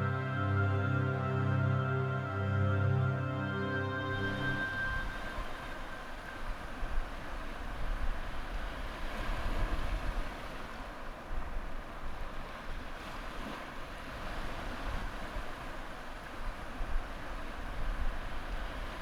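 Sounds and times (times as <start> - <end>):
sea waves and surf: 0.0 - 19.0.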